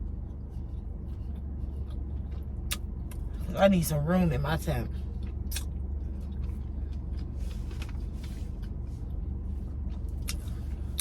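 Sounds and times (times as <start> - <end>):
car idling with air conditioning: 0.0 - 11.0.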